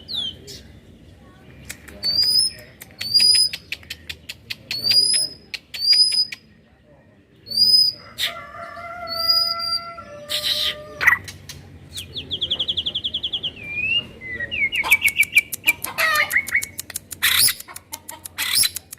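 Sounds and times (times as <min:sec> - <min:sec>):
rapid bird clicking notes: 0:01.6 - 0:06.4, 0:14.9 - 0:18.9
songbird whistles: 0:02.0 - 0:06.5, 0:07.5 - 0:08.0, 0:12.4 - 0:17.6.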